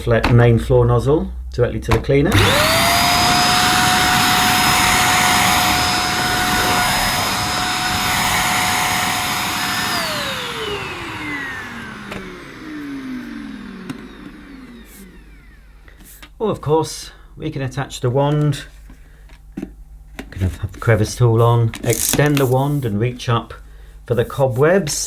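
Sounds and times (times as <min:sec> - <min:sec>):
handheld vacuum cleaner running: 0:02.3 - 0:16.1, 0:21.9 - 0:22.3.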